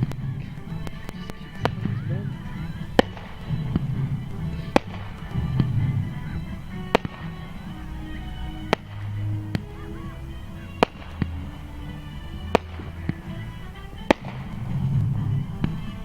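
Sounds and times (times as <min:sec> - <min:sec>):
fireworks shells bursting: 0:00.0 - 0:16.0
music: 0:00.0 - 0:16.0.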